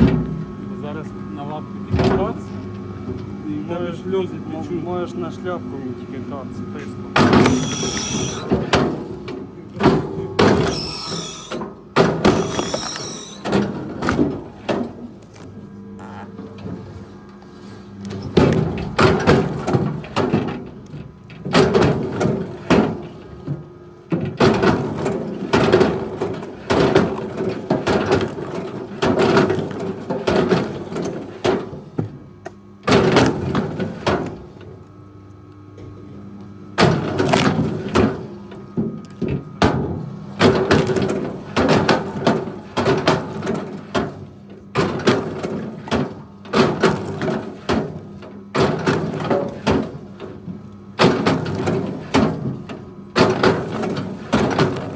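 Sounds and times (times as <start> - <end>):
clunks and creaks: 7.3 - 8.9, 10.4 - 23.6.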